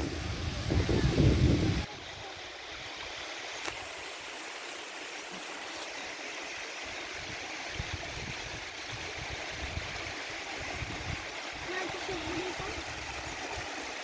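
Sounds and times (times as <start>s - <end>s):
wind buffeting microphone: 0.0s - 1.9s, 7.2s - 13.8s
waterfall rushing: 0.0s - 14.0s.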